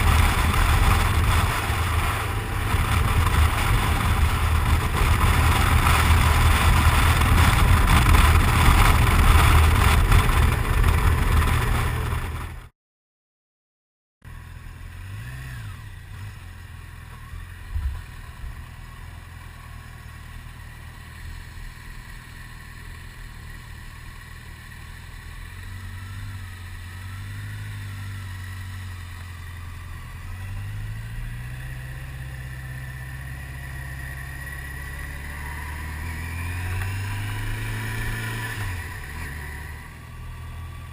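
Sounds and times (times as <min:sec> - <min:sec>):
wind rush: 0:00.0 - 0:12.5
motorcycle engine: 0:00.0 - 0:12.7, 0:14.3 - 0:40.9.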